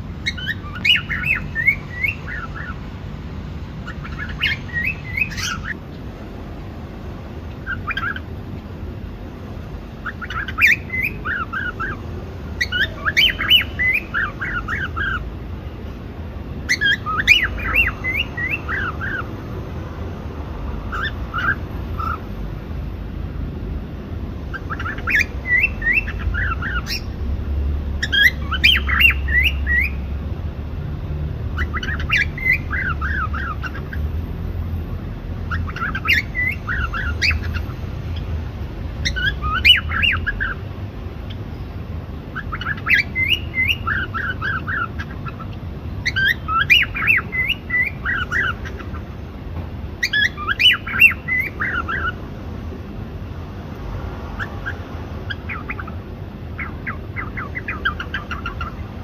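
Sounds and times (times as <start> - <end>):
cockatiel chirping: 0.2 - 2.8, 3.8 - 5.8, 7.6 - 8.2, 10.0 - 12.0, 12.6 - 15.2, 16.7 - 19.3, 20.9 - 22.2, 24.5 - 27.2, 28.0 - 30.1, 31.6 - 34.1, 35.4 - 38.3, 39.0 - 40.6, 42.3 - 49.1, 50.0 - 52.2, 54.4 - 56.0, 56.6 - 58.8.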